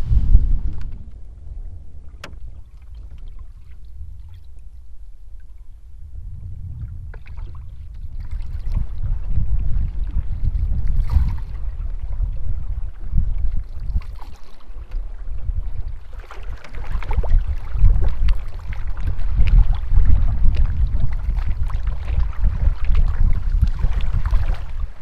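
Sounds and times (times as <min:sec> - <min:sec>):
canoe paddle swishing in water: 0:00.0 - 0:05.8, 0:06.8 - 0:25.0
wind rumble on microphone: 0:00.0 - 0:25.0.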